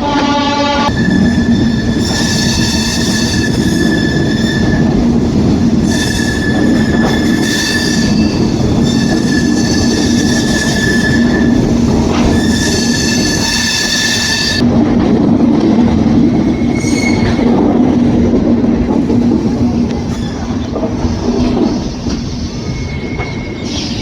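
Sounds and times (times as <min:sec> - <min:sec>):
train rumble: 0:00.0 - 0:24.0
train wheels squealing on rails: 0:00.9 - 0:14.6, 0:16.4 - 0:17.6, 0:20.0 - 0:24.0.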